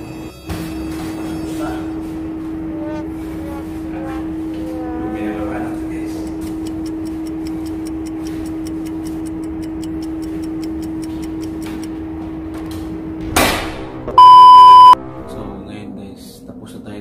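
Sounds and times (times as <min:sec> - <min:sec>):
clock-like ticking: 0:06.1 - 0:12.0
loud test-tone beep: 0:14.1 - 0:15.0.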